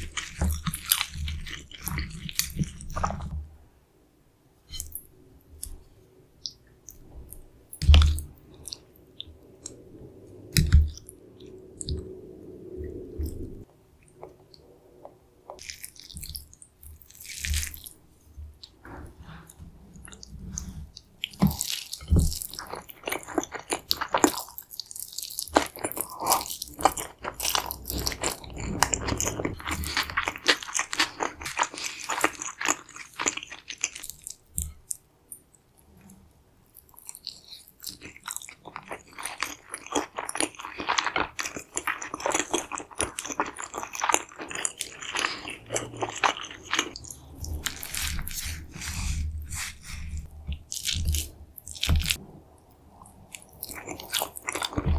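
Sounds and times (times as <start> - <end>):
crunchy biting and chewing: 20.1 - 34.7, 36.9 - 52.2, 53.0 - 54.9.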